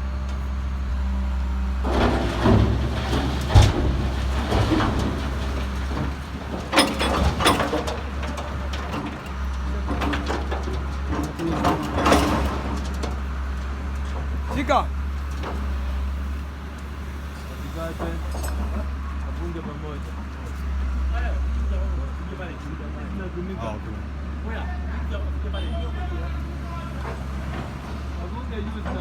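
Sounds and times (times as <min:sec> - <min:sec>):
vehicle rumbling: 0:00.0 - 0:29.0
knocks and rattles: 0:01.8 - 0:13.2.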